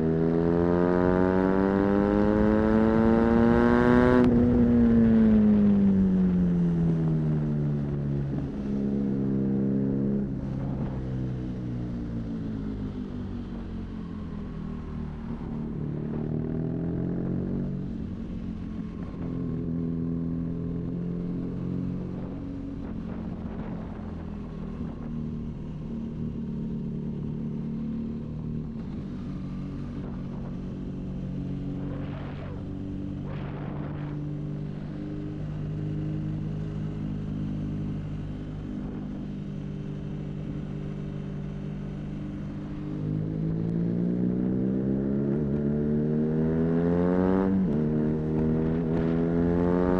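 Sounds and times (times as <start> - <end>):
motorcycle engine cruising: 0.0 - 49.9.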